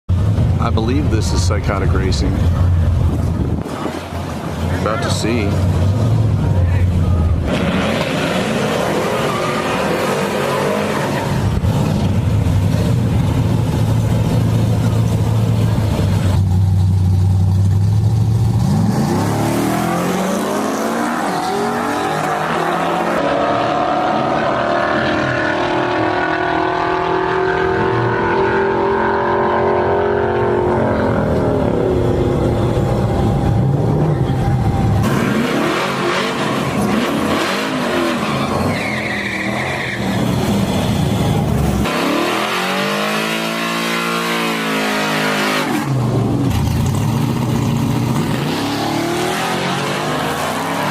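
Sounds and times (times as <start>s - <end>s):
truck engine at full throttle: 0.1s - 50.9s
engine revving up: 18.5s - 38.8s, 41.7s - 50.9s.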